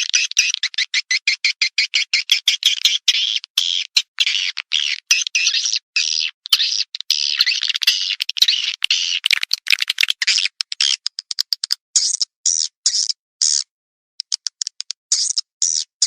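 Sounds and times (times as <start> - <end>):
rapid dry clicks: 7.4 - 12.3, 14.2 - 15.8.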